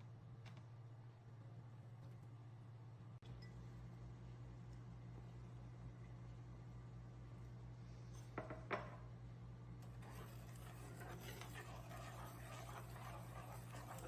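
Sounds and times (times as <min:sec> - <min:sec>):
low steady hum: 0:00.0 - 0:14.0
scraping and stirring in bowl: 0:09.8 - 0:14.0.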